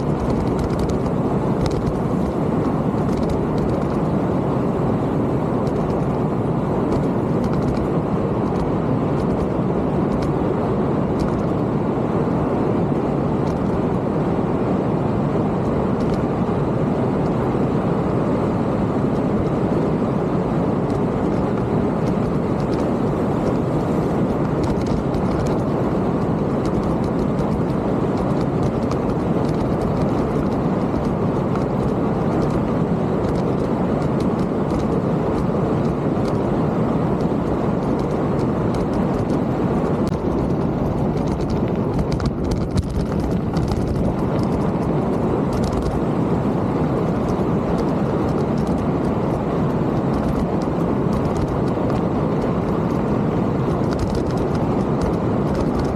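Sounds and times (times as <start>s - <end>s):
small clicks and rattles: 0.0s - 4.1s, 5.6s - 6.2s, 6.9s - 10.4s, 11.2s - 11.6s, 13.4s - 13.8s, 15.6s - 16.2s, 20.8s - 36.5s, 37.2s - 46.1s, 46.9s - 55.9s
wind on camera microphone: 0.0s - 55.9s
tyres rolling over trail: 19.2s - 55.9s.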